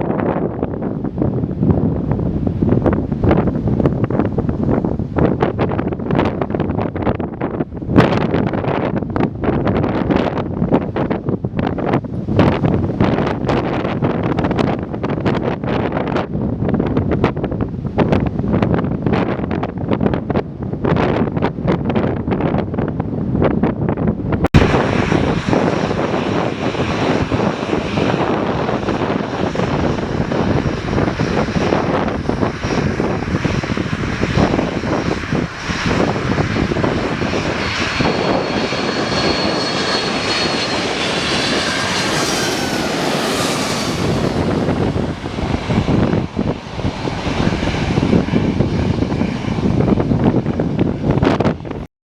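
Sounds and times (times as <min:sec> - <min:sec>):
aircraft engines running: 0:00.0 - 0:51.9
high engine whine: 0:24.2 - 0:51.8.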